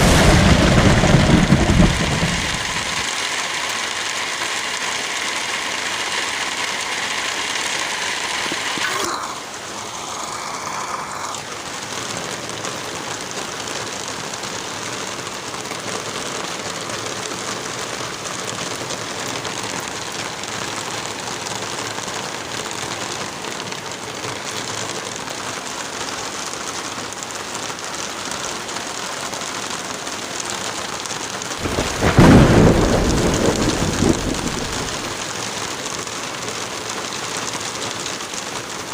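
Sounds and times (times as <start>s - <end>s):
thunder clap: 0.0s - 3.1s, 31.6s - 35.2s
heavy rain: 0.0s - 38.9s.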